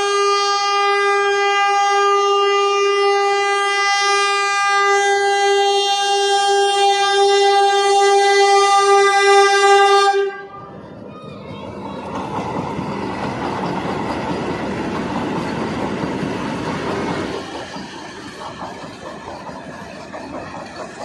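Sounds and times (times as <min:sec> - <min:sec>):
train horn: 0:00.0 - 0:10.8
train passing with wheel clatter: 0:00.0 - 0:21.0.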